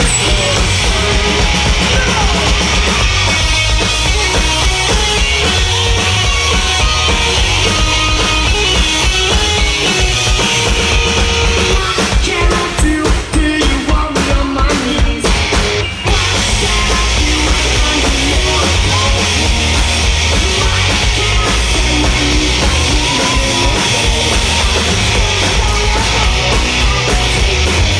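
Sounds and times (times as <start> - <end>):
person singing: 0.0 - 3.0, 11.5 - 27.9
bass guitar: 0.0 - 27.9
drum kit: 0.0 - 27.9
electric guitar: 0.0 - 27.9.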